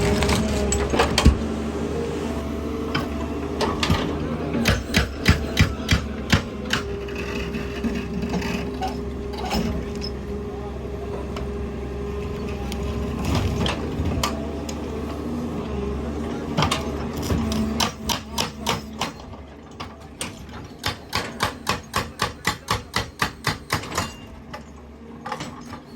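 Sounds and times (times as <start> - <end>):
hydraulic rock breaker hammering: 0.0 - 1.8, 2.6 - 10.2, 16.5 - 24.5
excavator engine running: 0.0 - 19.7.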